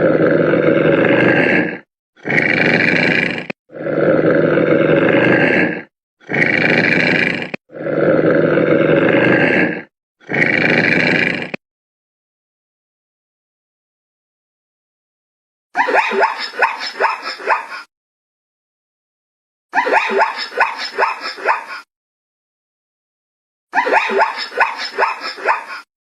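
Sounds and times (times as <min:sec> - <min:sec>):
large animal roaring: 0:00.0 - 0:11.6.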